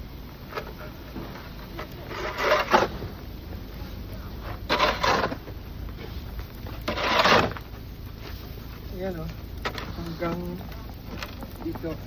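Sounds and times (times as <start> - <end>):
snow shovel scraping snow: 2.0 - 3.0, 4.7 - 5.4, 6.9 - 7.6.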